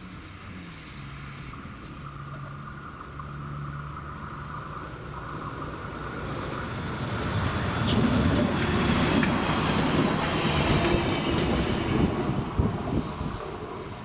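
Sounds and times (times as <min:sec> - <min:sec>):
train rumbling: 0:00.0 - 0:14.0
train rattles and clicks: 0:00.9 - 0:14.0.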